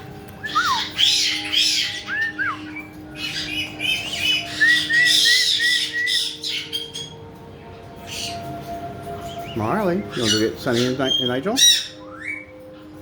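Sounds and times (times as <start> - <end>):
parrots calling: 0.4 - 12.6
rising and falling whistles: 4.4 - 6.4.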